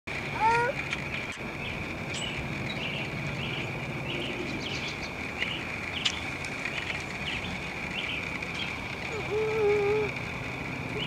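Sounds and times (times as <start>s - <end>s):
small birds chirping: 0.3s - 11.0s.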